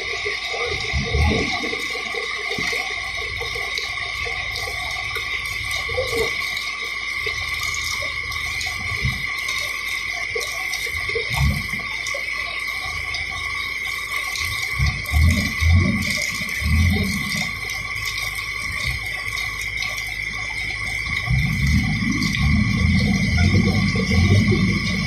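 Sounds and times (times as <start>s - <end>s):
backhoe engine running: 12.7s - 25.0s.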